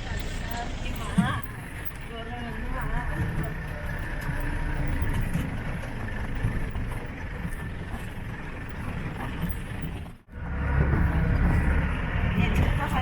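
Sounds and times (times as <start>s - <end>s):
steady low rumbling: 0.0s - 13.0s.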